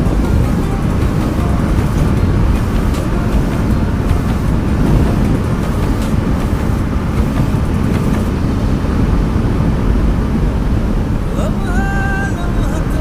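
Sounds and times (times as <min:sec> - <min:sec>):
motorcycle engine running: 0:00.0 - 0:08.5
wind rumble on microphone: 0:00.0 - 0:13.0.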